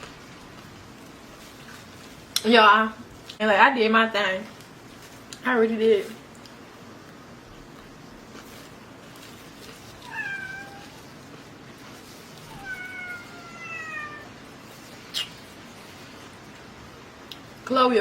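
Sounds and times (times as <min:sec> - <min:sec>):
cat meowing: 0:10.0 - 0:11.0, 0:12.5 - 0:14.4.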